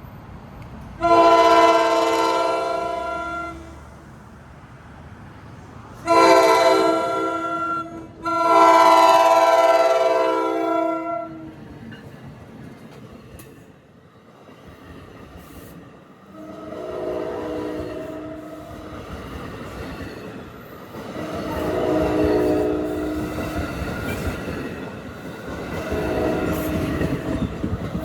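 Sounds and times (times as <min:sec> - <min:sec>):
train rumbling by: 0:00.0 - 0:28.0
train horn blasts: 0:01.0 - 0:03.9, 0:06.0 - 0:11.6, 0:16.3 - 0:19.0, 0:21.2 - 0:24.3, 0:25.7 - 0:28.0.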